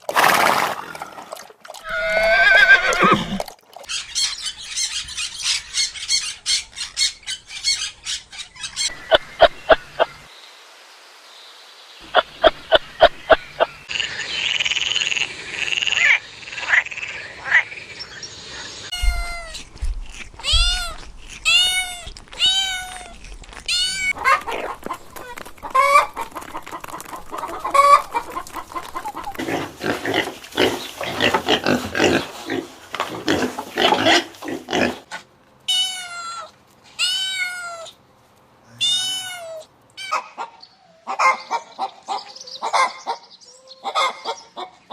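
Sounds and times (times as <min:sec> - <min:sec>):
frogs croaking in rapid pulses: 0:12.0 - 0:19.0.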